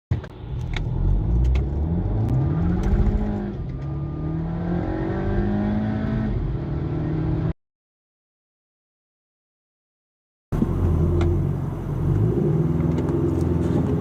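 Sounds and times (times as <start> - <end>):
car engine accelerating: 0.3 - 7.5, 10.6 - 14.0.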